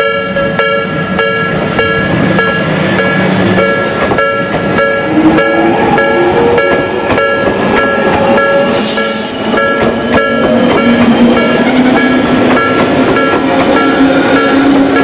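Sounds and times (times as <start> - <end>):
level crossing bell ringing: 0.0 - 11.5
electric train rolling past: 0.0 - 15.0.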